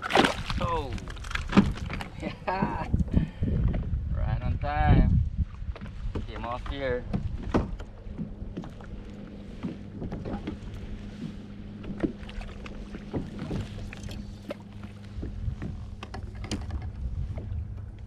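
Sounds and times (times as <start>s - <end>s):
low hum: 7.0s - 18.0s.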